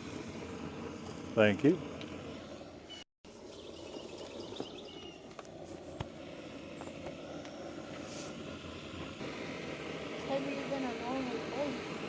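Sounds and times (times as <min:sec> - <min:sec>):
faint bird chirps: 0:02.9 - 0:05.2.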